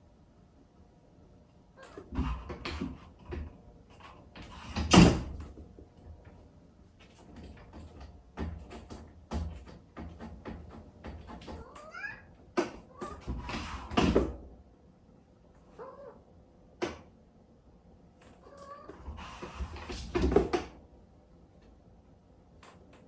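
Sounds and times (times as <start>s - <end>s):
knocks and thumps: 1.9s - 6.3s, 7.1s - 11.8s, 18.9s - 20.8s
cat meowing: 11.6s - 12.3s, 15.7s - 16.3s, 18.4s - 19.0s.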